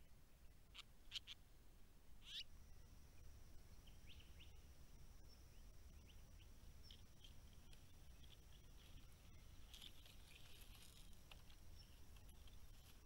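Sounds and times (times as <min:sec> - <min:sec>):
soft bird chirps: 0:02.2 - 0:02.5, 0:03.6 - 0:13.0.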